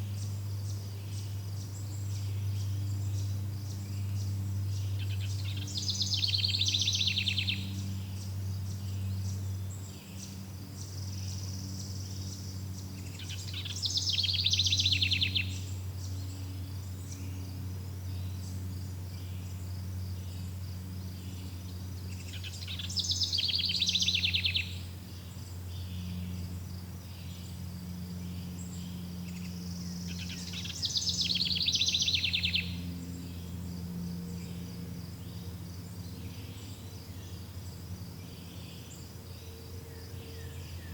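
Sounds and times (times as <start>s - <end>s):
crickets chirping: 0.0s - 40.9s
low steady hum: 0.0s - 40.9s
songbird trilling: 1.6s - 18.6s, 21.1s - 26.5s, 28.2s - 34.7s.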